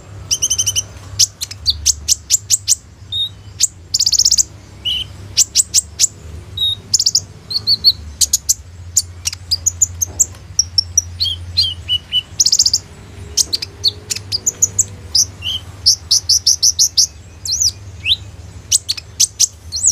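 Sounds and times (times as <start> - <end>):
sunbird singing: 0.0 - 19.9.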